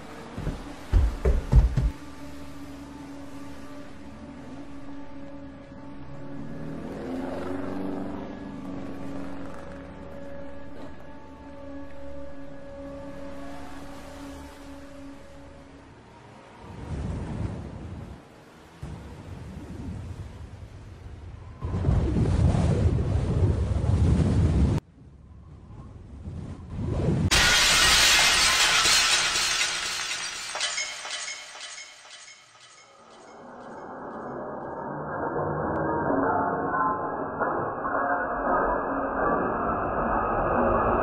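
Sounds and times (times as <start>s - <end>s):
glass shattering crash: 27.3s - 33.8s
fragments clinking and tinkling: 27.3s - 33.9s.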